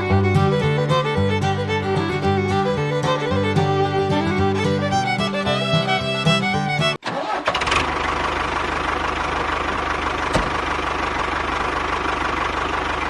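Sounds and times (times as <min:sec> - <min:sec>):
engine starting and idling: 0:07.0 - 0:13.0.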